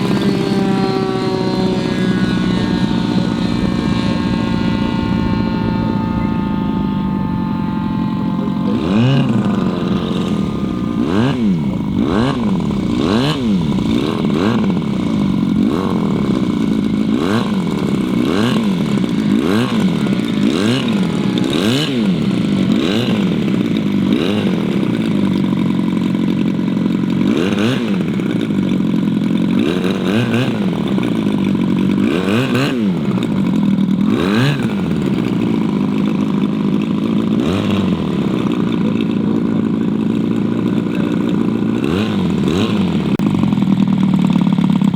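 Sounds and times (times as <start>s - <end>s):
model airplane engine: 0.0s - 44.9s.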